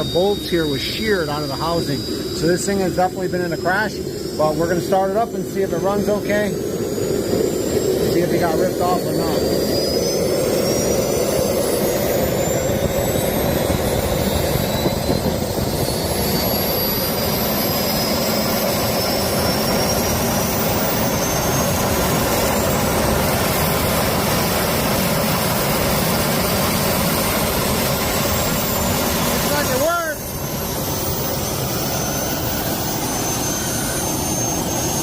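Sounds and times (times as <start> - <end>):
jet engine whining: 0.0 - 35.0.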